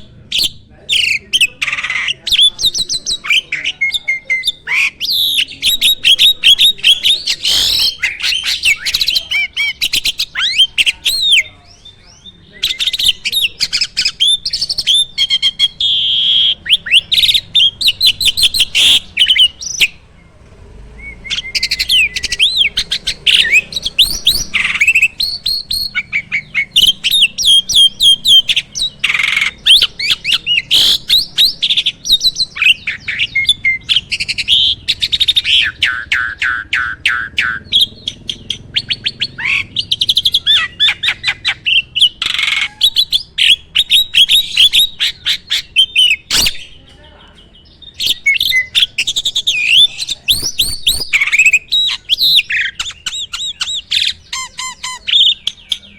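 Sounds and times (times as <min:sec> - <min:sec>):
starling singing: 0:00.0 - 0:55.9.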